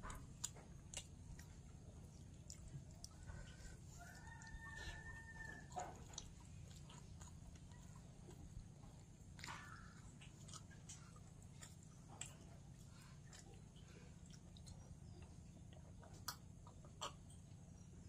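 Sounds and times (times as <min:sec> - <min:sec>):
soft chewing: 0:00.0 - 0:18.0
small mouth clicks: 0:16.1 - 0:17.4.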